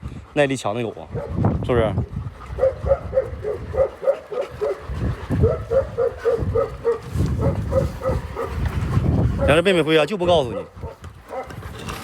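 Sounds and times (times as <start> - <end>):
dog whining: 5.4 - 8.6.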